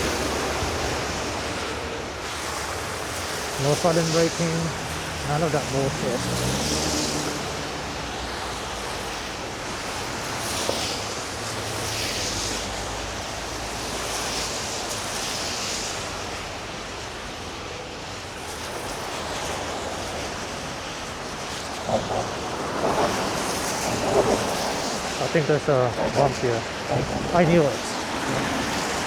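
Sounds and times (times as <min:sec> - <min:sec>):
tires rolling through snow: 0:00.0 - 0:29.0
wind on microphone: 0:19.4 - 0:29.0.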